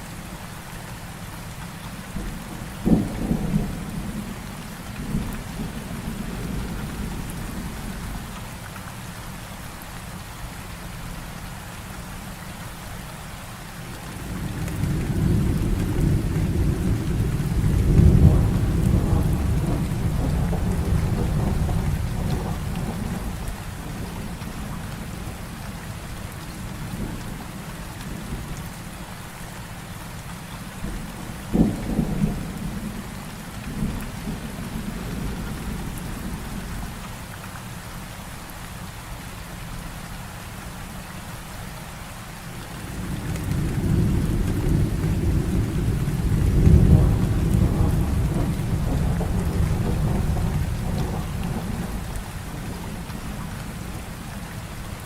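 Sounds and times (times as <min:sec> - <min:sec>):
heavy rain: 0:00.0 - 0:55.0
low roll of thunder: 0:02.2 - 0:08.2, 0:14.0 - 0:27.4, 0:30.8 - 0:37.0, 0:42.7 - 0:54.2
sharp thunderclap: 0:14.4 - 0:23.4, 0:43.0 - 0:53.2.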